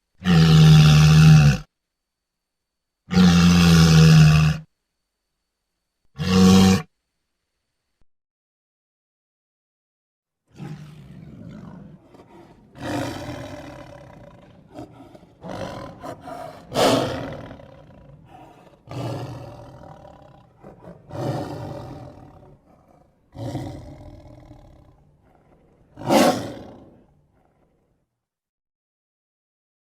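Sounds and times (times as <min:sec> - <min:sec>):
monster roars and growls: 0:10.6 - 0:22.6, 0:23.4 - 0:27.1.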